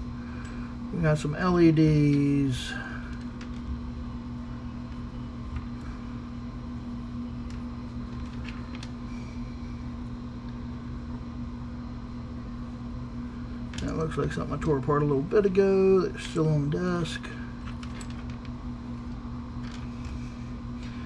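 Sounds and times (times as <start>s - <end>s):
low machine hum: 0.0s - 21.0s
light clicks of small parts: 3.1s - 3.7s, 7.4s - 9.0s, 17.6s - 20.2s.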